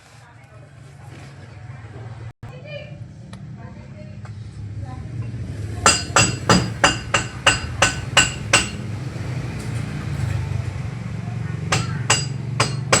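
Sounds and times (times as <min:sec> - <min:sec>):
hammer blows on metal: 0:05.8 - 0:10.5, 0:11.7 - 0:13.0
steady low hum: 0:05.8 - 0:10.8.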